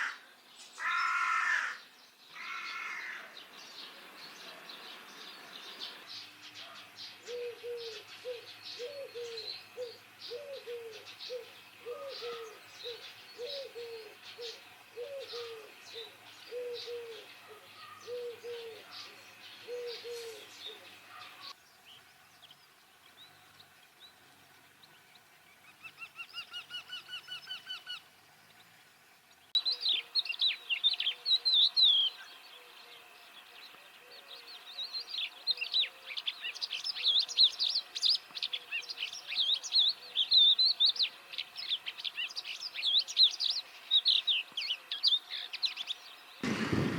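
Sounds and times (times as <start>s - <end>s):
small birds chirping: 0.0s - 46.9s
dove cooing: 7.2s - 21.5s.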